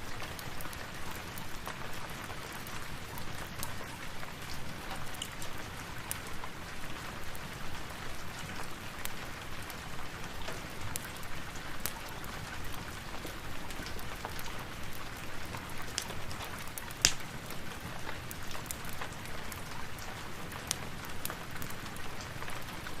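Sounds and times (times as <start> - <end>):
steady rain: 0.0 - 23.0
small sharp clicks: 17.0 - 17.2.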